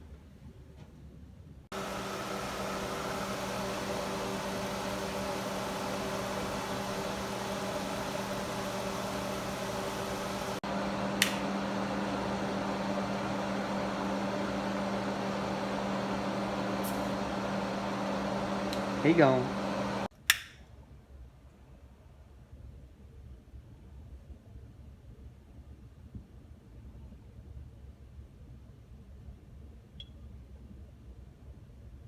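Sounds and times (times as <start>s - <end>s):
electric appliance humming: 1.7s - 20.1s
short click: 11.2s - 11.5s, 20.3s - 20.6s.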